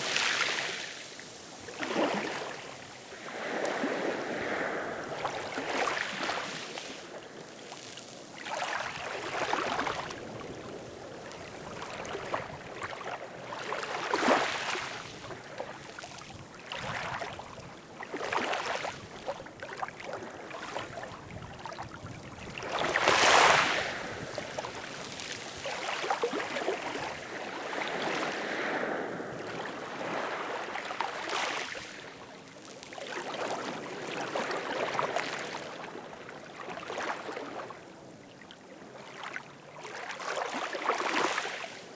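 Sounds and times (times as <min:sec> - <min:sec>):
ocean waves washing in: 0:00.0 - 0:07.4.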